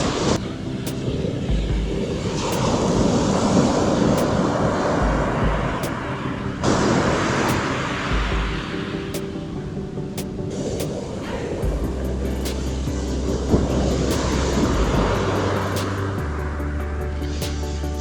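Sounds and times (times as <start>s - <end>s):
ocean surf washing onto beach: 0.0s - 11.8s
wind buffeting microphone: 0.0s - 17.3s.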